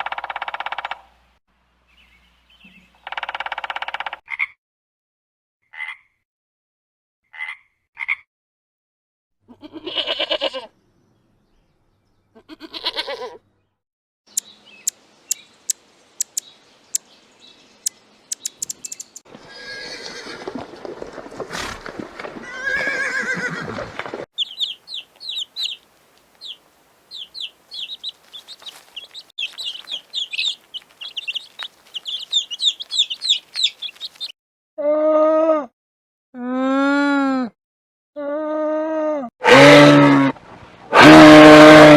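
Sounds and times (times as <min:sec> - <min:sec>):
sharp clicking: 0:14.3 - 0:17.0, 0:17.8 - 0:19.2
animal calls: 0:14.3 - 0:17.1, 0:17.8 - 0:19.6
rapid high-pitched chirps: 0:14.3 - 0:17.1, 0:17.8 - 0:19.2
short chirps: 0:14.3 - 0:17.1, 0:17.8 - 0:19.2
loud drawn-out animal calls: 0:39.4 - 0:41.9.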